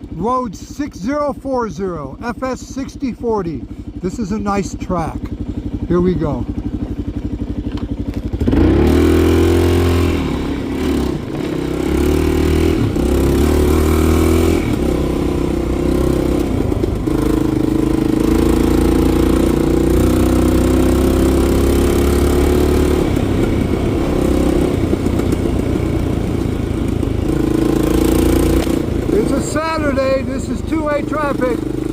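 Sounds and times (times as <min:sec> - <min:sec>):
motorcycle engine accelerating: 0:00.0 - 0:31.9.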